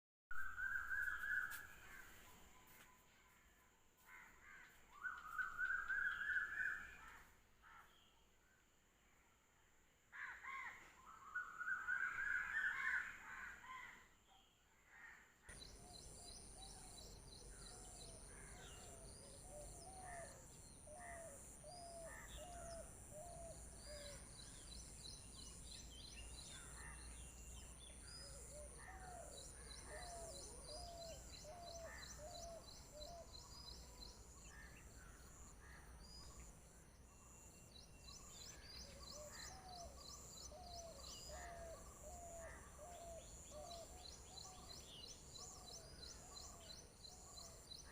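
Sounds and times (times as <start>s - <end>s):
birds chirping and calling: 4.9s - 7.2s, 15.5s - 36.6s, 37.8s - 47.9s.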